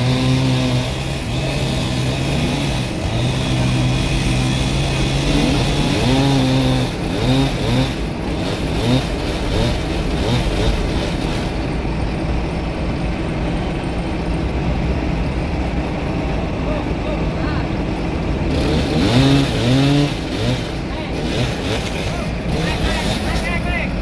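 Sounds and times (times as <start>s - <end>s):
chainsaw engine revving: 0.0s - 11.6s, 17.9s - 23.8s.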